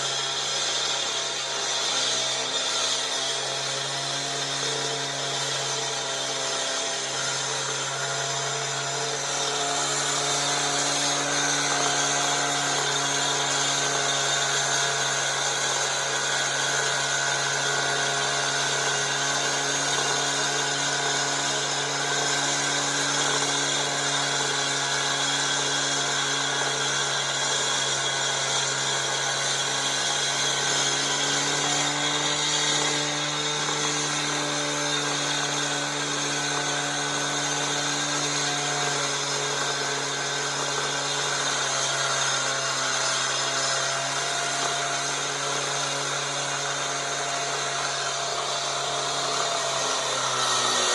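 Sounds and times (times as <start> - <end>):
power saw cutting concrete: 0.0 - 50.9.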